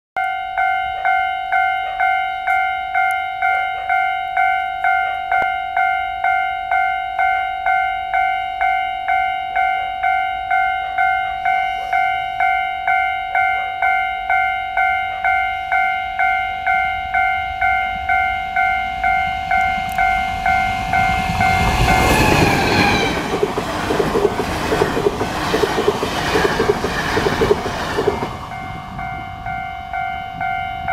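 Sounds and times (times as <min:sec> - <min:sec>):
level-crossing bell ringing: 0:00.2 - 0:23.7, 0:28.0 - 0:30.9
brief falling tone: 0:11.1 - 0:12.6, 0:16.9 - 0:23.2
train wheels rushing on rails: 0:17.7 - 0:30.9
wheels clacking over rail joints: 0:19.0 - 0:29.2.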